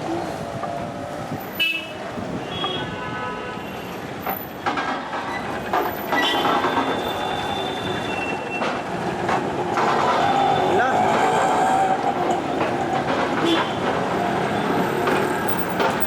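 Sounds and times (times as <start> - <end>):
street traffic: 0.0 - 16.0
vehicle horns tooting: 1.5 - 4.0, 6.0 - 8.8, 13.4 - 13.9.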